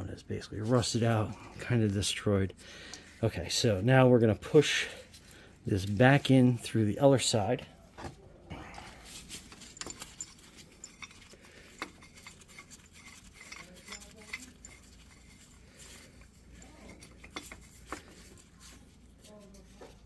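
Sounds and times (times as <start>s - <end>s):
metal tools clinking and scraping: 4.4s - 20.0s.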